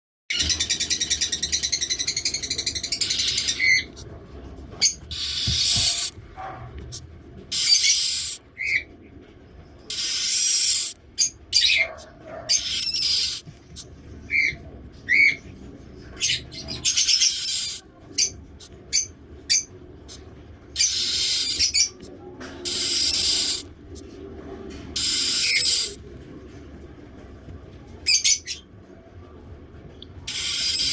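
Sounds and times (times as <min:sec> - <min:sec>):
chick high peeps: 0:04.8 - 0:06.2, 0:06.9 - 0:08.8, 0:09.9 - 0:11.0, 0:11.6 - 0:13.4, 0:16.7 - 0:19.1, 0:22.7 - 0:23.7, 0:25.0 - 0:26.0, 0:30.3 - 0:30.9
chick raspy hiss-like calls: 0:05.1 - 0:06.1, 0:07.5 - 0:08.8, 0:09.9 - 0:11.0, 0:22.6 - 0:23.7, 0:25.0 - 0:26.0, 0:30.3 - 0:30.9.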